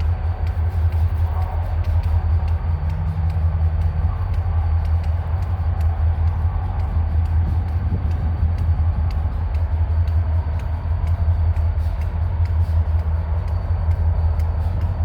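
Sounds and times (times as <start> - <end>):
diesel train rumbling: 0.0 - 15.0
faint ticks: 0.0 - 15.0.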